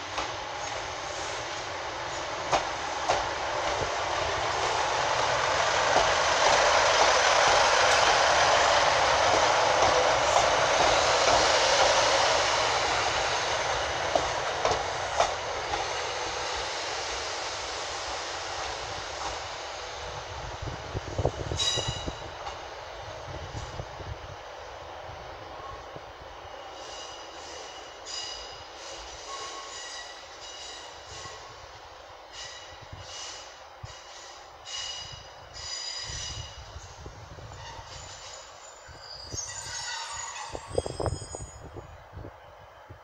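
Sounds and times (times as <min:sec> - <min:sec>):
diesel train passing: 0:00.0 - 0:43.0.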